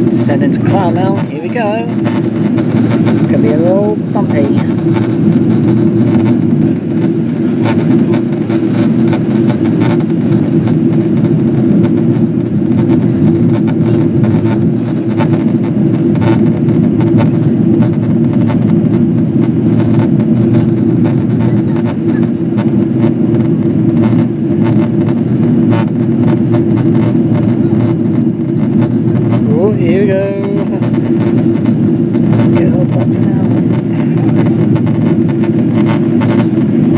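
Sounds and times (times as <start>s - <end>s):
airplane cabin rumble: 0.0s - 36.9s.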